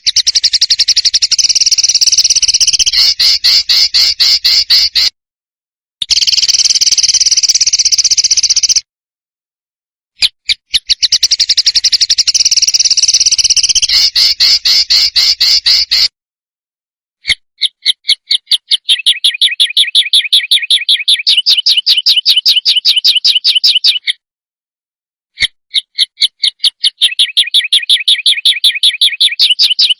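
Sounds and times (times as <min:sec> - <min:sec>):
songbird trilling harsh notes: 0:00.0 - 0:05.1, 0:10.9 - 0:16.1.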